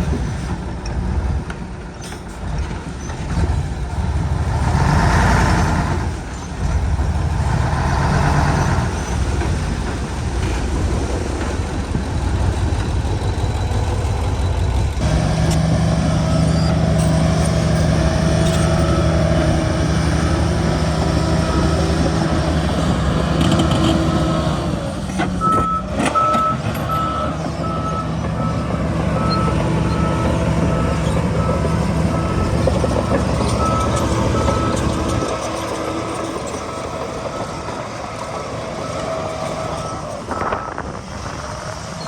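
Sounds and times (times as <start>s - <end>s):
heavy diesel machinery running: 0.0s - 42.0s
reversing alarm beeping: 15.0s - 23.6s, 25.4s - 40.9s.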